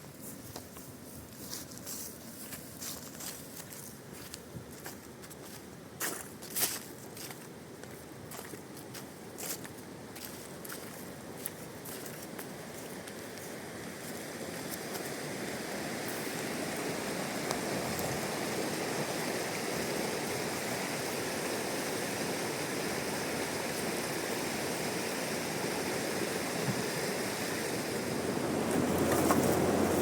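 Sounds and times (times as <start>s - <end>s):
rushing river water: 8.3s - 30.0s.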